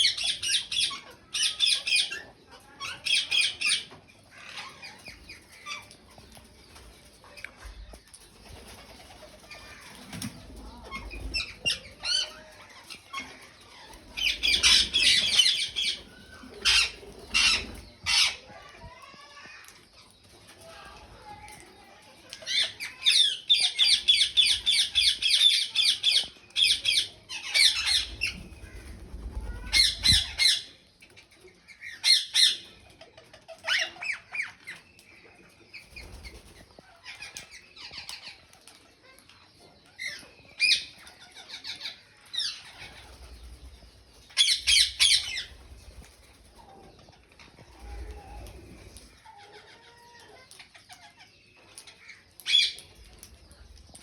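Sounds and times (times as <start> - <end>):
parakeets screeching: 10.8 - 18.5, 26.6 - 30.6, 44.4 - 45.6.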